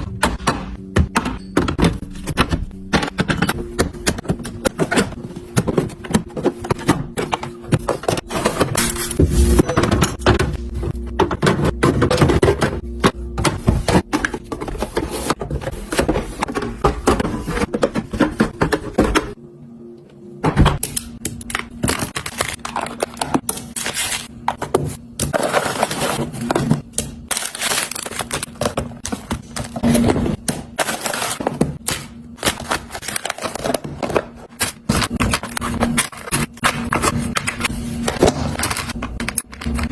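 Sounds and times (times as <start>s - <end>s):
food packages crinkling and clicking: 20.8s - 24.3s, 25.2s - 39.9s.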